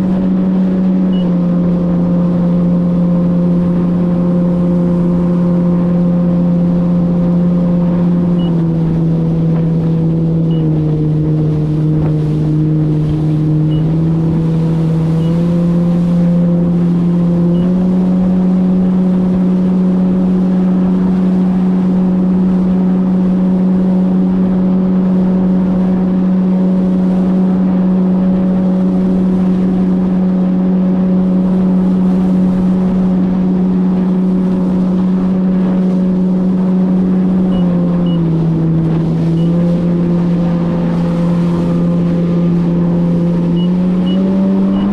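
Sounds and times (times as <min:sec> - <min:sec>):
jet ski engine running: 0:00.0 - 0:44.9
rushing water: 0:00.0 - 0:44.9.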